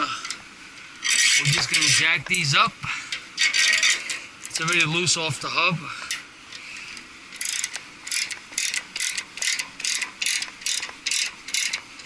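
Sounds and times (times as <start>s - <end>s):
ratchet wrench clicking: 7.4s - 11.8s.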